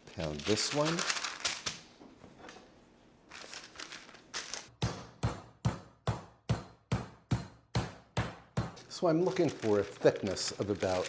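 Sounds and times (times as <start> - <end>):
wrapping crinkling: 0.0 - 2.6, 3.2 - 4.8, 9.0 - 11.0
meat being pounded: 4.8 - 8.9.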